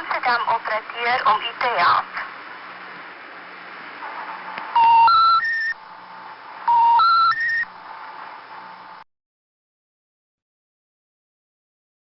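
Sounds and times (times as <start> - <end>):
phone line hiss: 4.7 - 9.0
rising three-tone phone beeps: 4.8 - 5.8, 6.7 - 7.7.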